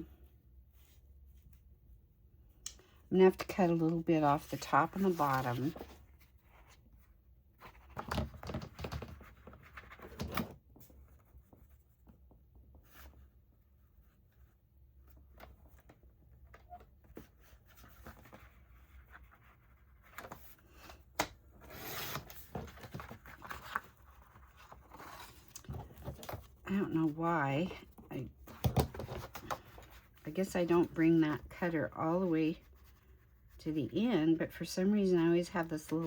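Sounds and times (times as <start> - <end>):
paper rustling and sliding: 3.7 - 6.7.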